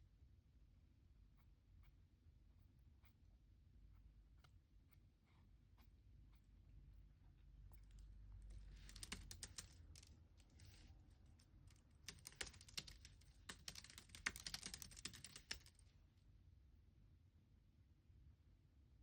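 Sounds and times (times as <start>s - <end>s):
computer keyboard typing: 8.4s - 15.8s.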